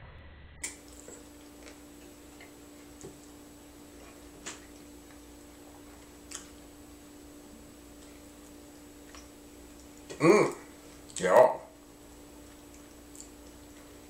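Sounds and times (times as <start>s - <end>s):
faint steady hum: 0.6s - 14.0s
mouth clicks and smacks chewing: 12.6s - 13.8s.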